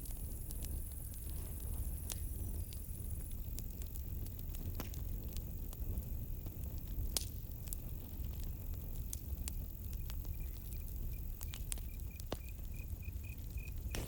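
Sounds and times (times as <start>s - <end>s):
campfire crackling: 0.0s - 14.0s
cricket trill: 9.9s - 14.0s.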